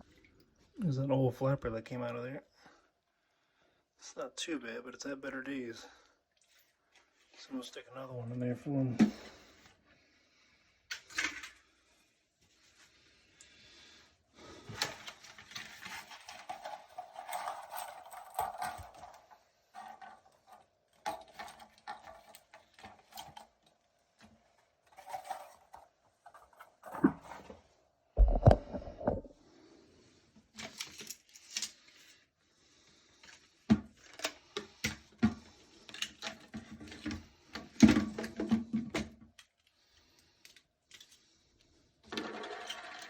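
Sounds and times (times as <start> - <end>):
plastic parts clicking and rattling: 10.9 - 11.7, 14.6 - 27.5, 30.4 - 32.2, 33.1 - 43.0.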